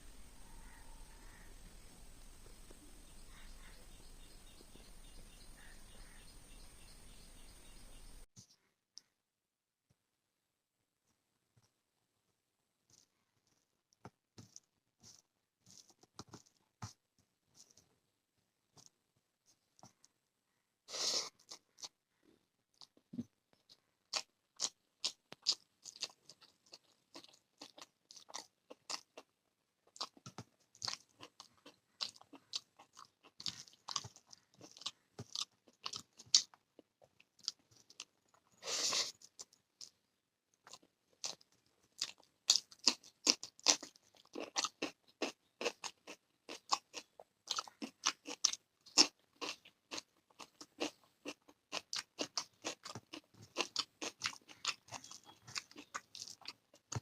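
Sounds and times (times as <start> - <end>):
crunching food in mouth: 22.7 - 40.0, 40.6 - 57.0.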